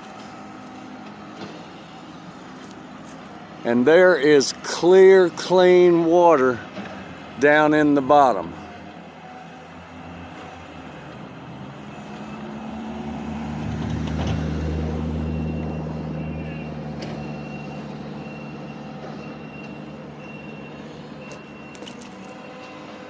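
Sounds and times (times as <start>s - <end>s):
heavy vehicle engine: 0.0s - 23.0s
reversing alarm beeping: 15.2s - 23.0s.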